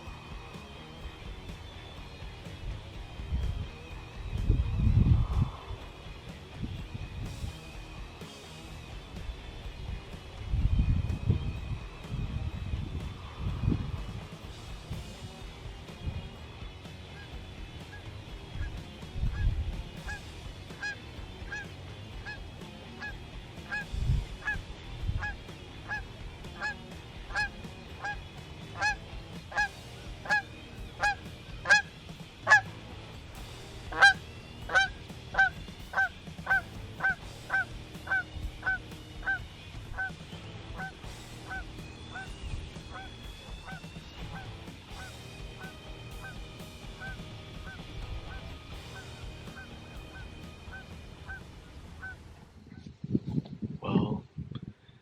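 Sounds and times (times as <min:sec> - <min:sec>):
turkey yelps: 0:20.0 - 0:20.2, 0:23.0 - 0:23.8, 0:25.2 - 0:28.2, 0:28.8 - 0:31.9, 0:33.9 - 0:39.4, 0:40.8 - 0:46.4, 0:47.0 - 0:51.4.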